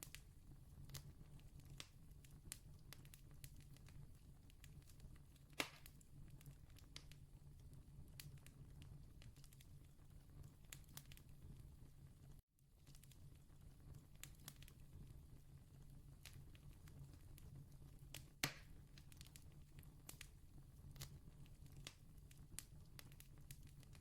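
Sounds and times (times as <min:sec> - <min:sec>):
campfire crackling: 0:00.9 - 0:11.6, 0:12.8 - 0:20.4, 0:21.0 - 0:24.0
sharp pop: 0:05.6 - 0:05.8.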